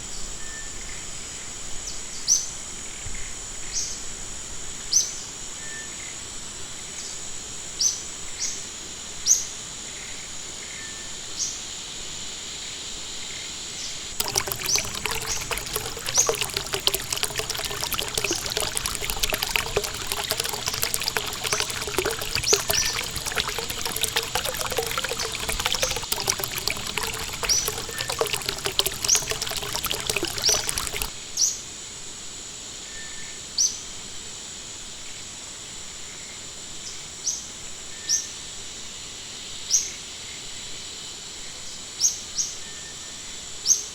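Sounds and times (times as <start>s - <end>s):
water trickling and splashing: 14.2s - 31.2s.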